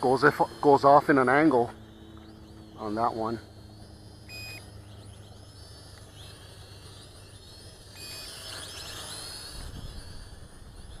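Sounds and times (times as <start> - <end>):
toy drone motors whining: 0.0 - 11.0
short beep: 4.3 - 4.6.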